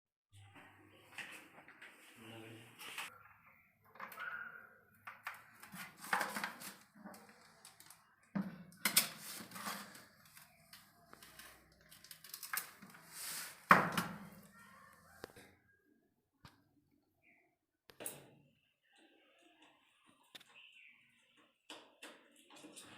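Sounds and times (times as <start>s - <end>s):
objects clicking and scraping: 5.0s - 14.5s.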